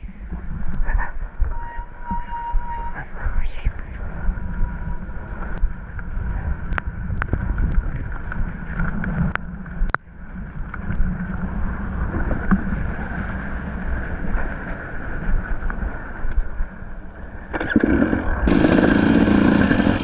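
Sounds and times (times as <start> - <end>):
wind rumbling on microphone: 0.0 - 20.0
dirt bike engine running: 17.7 - 20.0.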